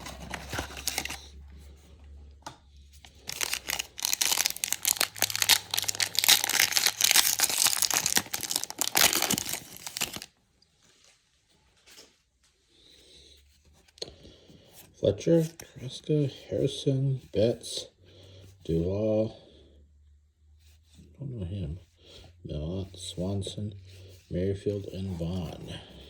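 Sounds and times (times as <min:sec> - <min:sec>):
wrapper being torn and crinkled: 0:00.0 - 0:01.2, 0:03.1 - 0:10.3.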